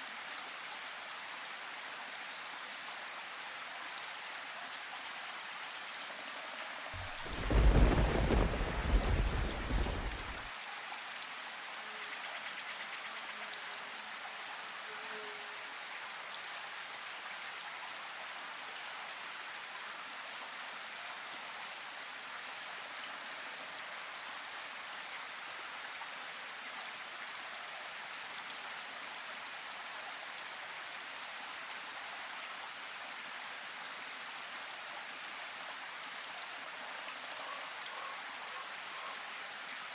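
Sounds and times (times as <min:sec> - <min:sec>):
steady rain falling: 0:00.0 - 0:39.9
thunder rumbling: 0:07.0 - 0:10.5.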